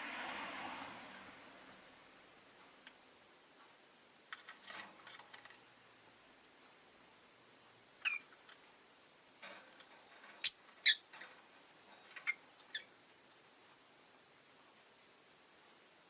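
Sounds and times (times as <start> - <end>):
lovebirds chirping and squeaking: 8.0 - 8.3, 10.4 - 11.1, 12.1 - 12.9.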